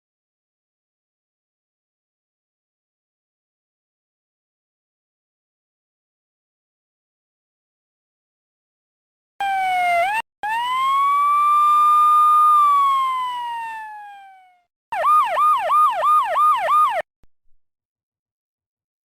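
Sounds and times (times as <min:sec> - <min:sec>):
police siren wailing: 0:09.4 - 0:17.1
siren yelp: 0:09.4 - 0:17.1.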